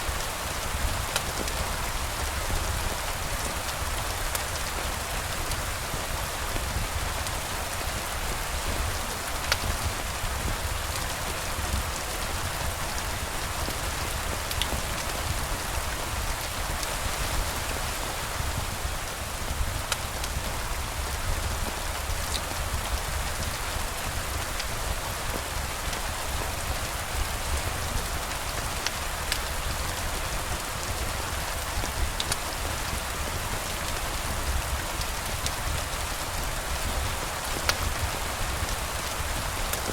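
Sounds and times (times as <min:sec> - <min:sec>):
steady rain falling: 0:00.0 - 0:39.9
faint raindrop ticks: 0:06.5 - 0:18.0, 0:19.6 - 0:39.9.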